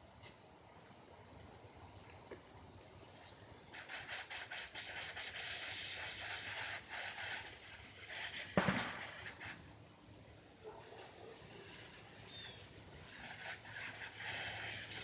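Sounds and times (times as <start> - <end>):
hose spraying water: 3.2 - 15.0.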